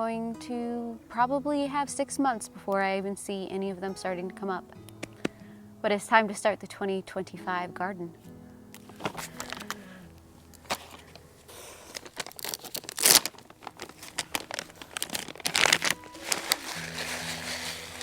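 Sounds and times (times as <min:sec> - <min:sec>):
paper or plastic crinkling: 0:08.8 - 0:18.0.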